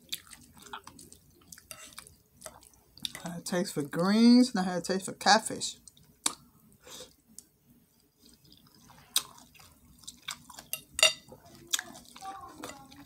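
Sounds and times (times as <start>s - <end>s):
person chewing food: 0.0s - 3.3s, 5.8s - 13.0s.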